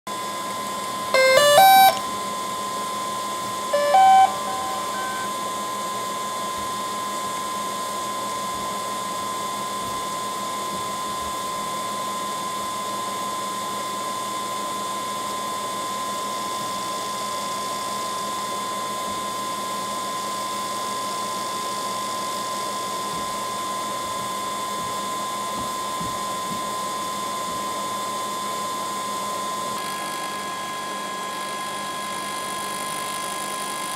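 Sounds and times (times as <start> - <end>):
short beeps: 1.2 - 2.1, 3.8 - 5.4
startup melody of beeps: 1.2 - 2.1, 3.8 - 5.3
drone high whine: 1.2 - 2.2, 3.6 - 5.8.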